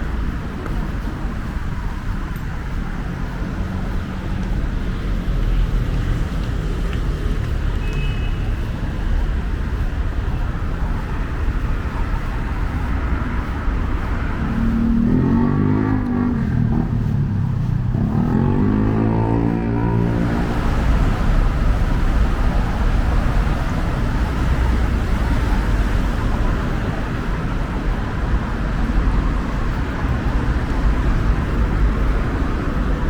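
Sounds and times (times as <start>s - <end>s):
city traffic rumble: 0.0s - 33.0s
vehicle engine passing: 13.2s - 33.0s.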